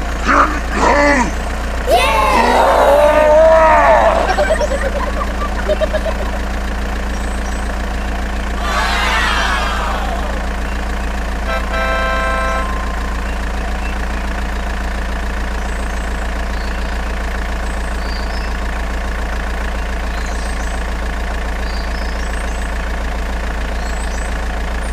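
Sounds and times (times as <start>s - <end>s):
steady motor drone: 2.0s - 14.8s
short flat horn tone: 11.4s - 13.4s.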